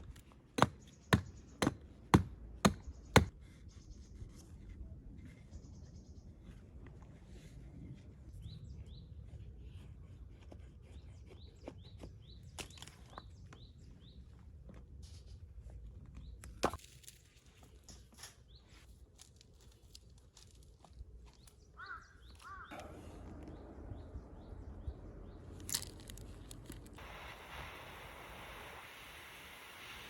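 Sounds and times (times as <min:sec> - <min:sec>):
birds chirping: 0:21.3 - 0:27.2
low steady rumble: 0:22.7 - 0:29.9.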